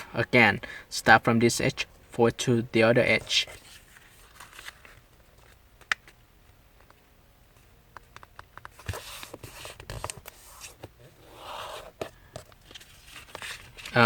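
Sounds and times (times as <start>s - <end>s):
paper being folded and creased: 3.3s - 5.6s, 12.6s - 14.0s.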